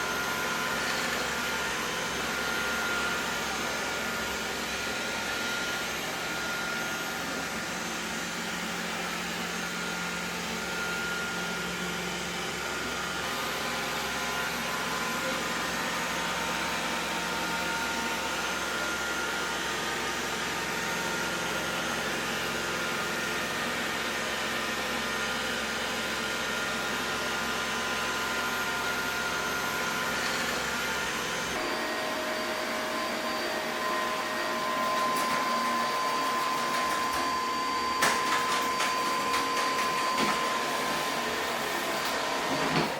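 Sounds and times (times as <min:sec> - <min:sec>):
robot vacuum running: 0:28.5 - 0:42.9.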